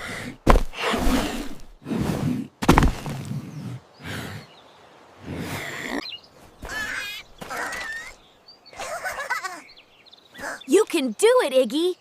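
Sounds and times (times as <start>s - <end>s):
bird chirps and warbling: 5.8s - 12.0s.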